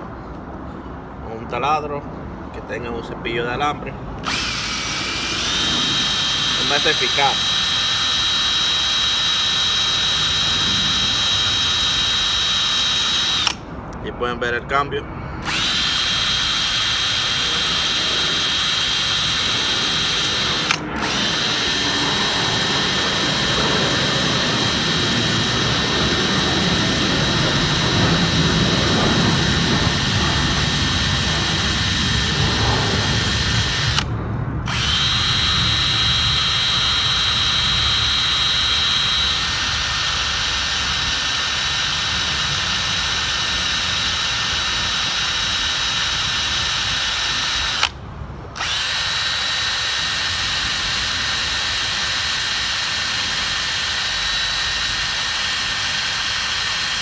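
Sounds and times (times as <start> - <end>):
electric drill with wire brush: 4.2 - 13.7, 15.4 - 34.1, 34.7 - 48.0, 48.6 - 57.0.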